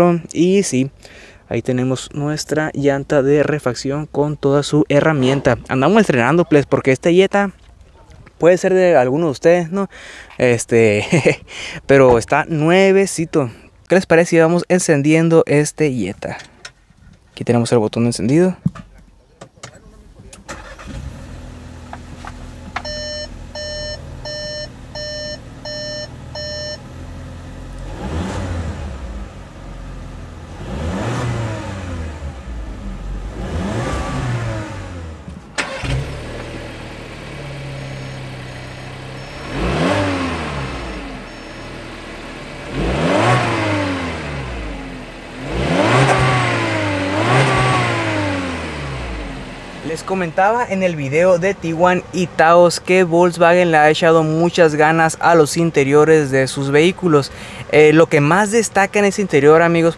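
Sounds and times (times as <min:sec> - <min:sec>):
car engine revving: 0:20.5 - 0:52.4
higher beeps: 0:22.8 - 0:26.8, 0:37.7 - 0:41.8
car warning chime beeps: 0:22.8 - 0:26.9, 0:37.7 - 0:42.0.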